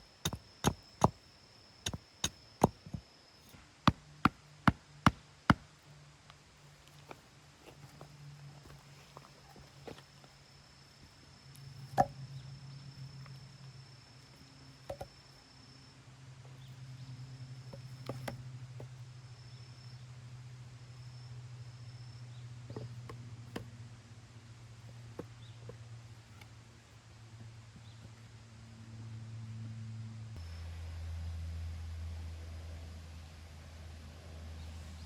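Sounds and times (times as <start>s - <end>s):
steady low hum: 15.5s - 35.0s.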